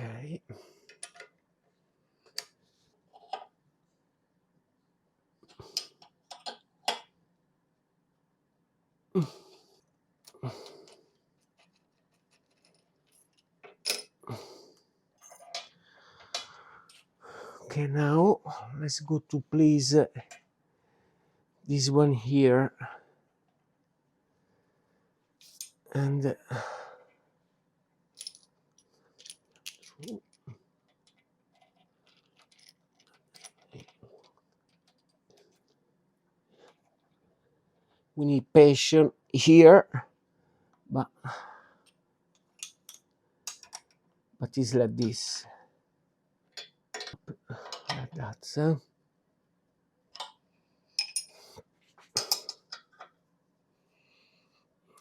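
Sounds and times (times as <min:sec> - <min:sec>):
metallic clicks and clinks: 0:28.2 - 0:30.4
metal tools clanking: 0:52.2 - 0:53.0.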